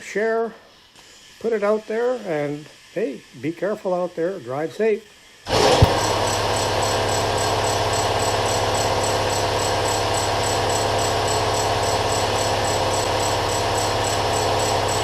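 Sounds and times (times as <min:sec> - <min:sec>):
air compressor buzzing hum: 0:05.1 - 0:15.0.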